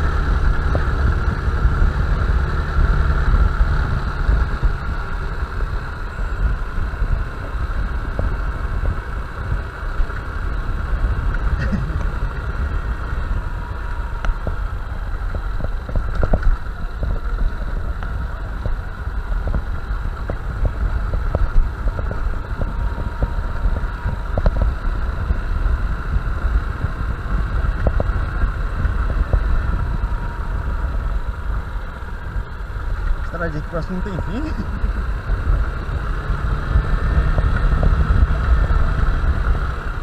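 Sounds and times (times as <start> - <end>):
motorcycle engine running: 0.0 - 40.0
wind buffeting microphone: 0.0 - 40.0.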